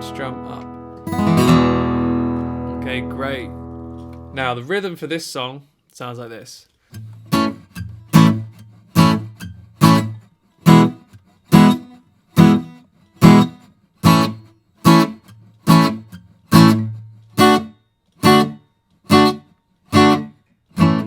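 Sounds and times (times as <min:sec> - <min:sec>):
guitar reggae strums: 0:00.0 - 0:05.0, 0:06.8 - 0:21.0.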